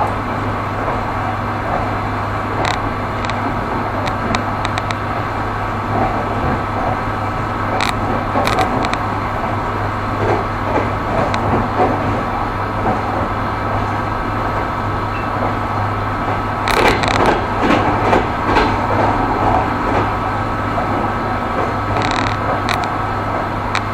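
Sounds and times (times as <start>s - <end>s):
train wheels rumbling on track: 0.0s - 23.9s
sharp clicks: 2.6s - 5.1s, 7.8s - 9.0s, 22.0s - 23.0s.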